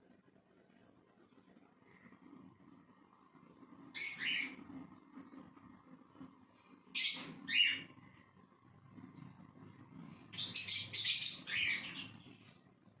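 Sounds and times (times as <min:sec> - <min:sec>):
parrot chirping: 0:03.9 - 0:04.7, 0:06.9 - 0:08.1, 0:10.3 - 0:12.5.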